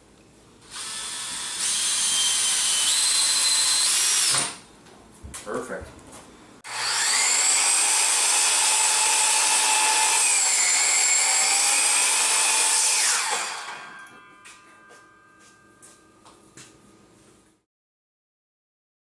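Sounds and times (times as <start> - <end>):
power drill motor whining: 0.7 - 4.6, 6.7 - 14.3.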